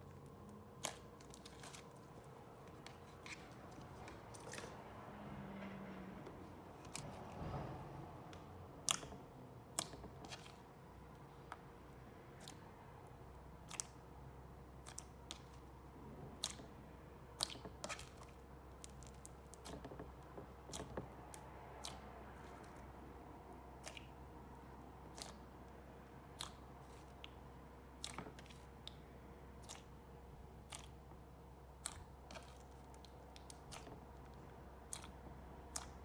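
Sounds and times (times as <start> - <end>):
slime clicking and popping: 8.8 - 9.1, 26.3 - 27.4, 31.8 - 36.0.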